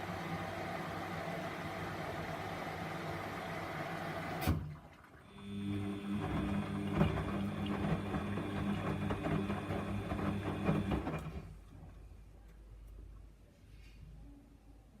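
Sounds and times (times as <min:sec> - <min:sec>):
washing machine motor humming: 0:00.0 - 0:11.6.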